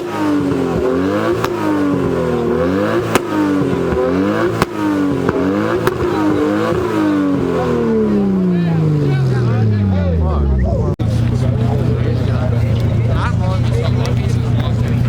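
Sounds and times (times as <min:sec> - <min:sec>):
sharp exhaust pops: 0:00.0 - 0:07.2
car engine revving: 0:00.0 - 0:15.0.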